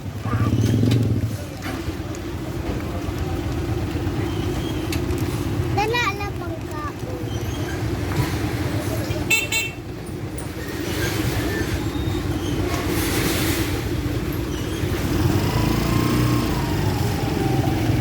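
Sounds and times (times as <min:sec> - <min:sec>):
motorcycle engine running: 0:00.0 - 0:05.9.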